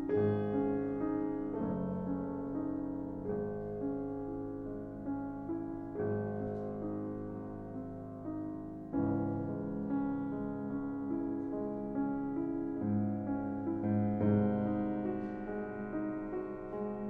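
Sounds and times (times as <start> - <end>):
gentle solo piano music: 0.0 - 17.0.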